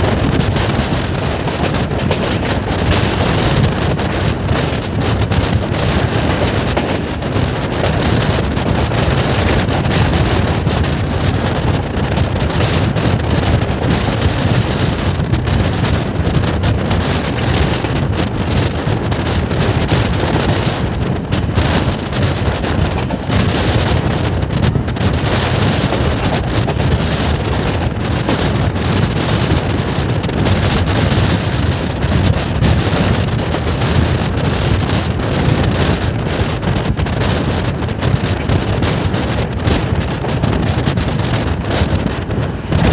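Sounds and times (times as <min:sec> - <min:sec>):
train rumbling on track: 0:00.0 - 0:42.9
wind rushing over microphone: 0:00.0 - 0:42.9.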